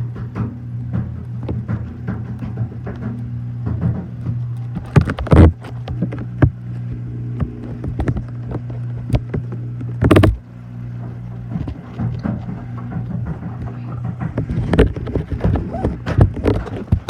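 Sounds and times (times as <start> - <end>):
washing machine knocks and thuds: 0.0 - 5.6, 11.5 - 17.0
washing machine humming: 0.0 - 17.0.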